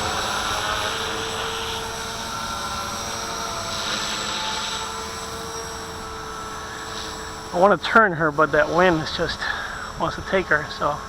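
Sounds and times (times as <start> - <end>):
rc helicopter motor whine: 0.0 - 11.0.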